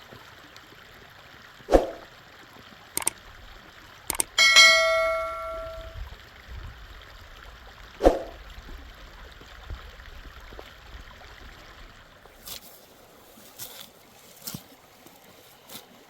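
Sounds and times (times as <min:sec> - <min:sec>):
mountain stream running: 0:00.0 - 0:04.4, 0:06.2 - 0:16.0
faint clicks: 0:03.0 - 0:03.2
sharp knock: 0:04.4 - 0:05.9.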